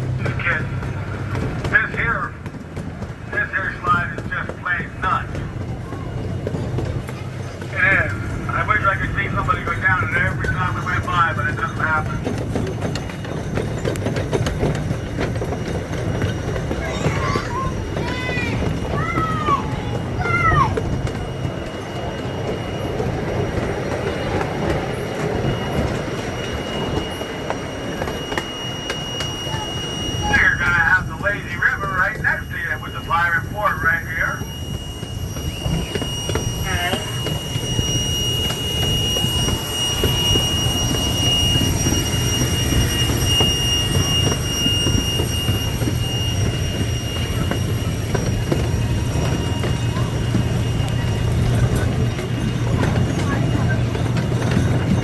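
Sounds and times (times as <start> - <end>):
wheels rumbling on rails: 0.0 - 55.0
thin high tone: 16.6 - 55.0
high whine: 18.2 - 55.0.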